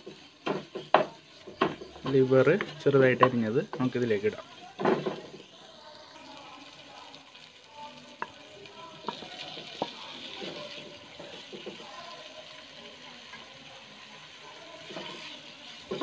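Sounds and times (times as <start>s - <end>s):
wooden spatula knocking on pan: 0.0s - 3.9s, 4.7s - 5.5s, 8.2s - 11.9s
liver sizzling in a pan: 0.0s - 16.0s.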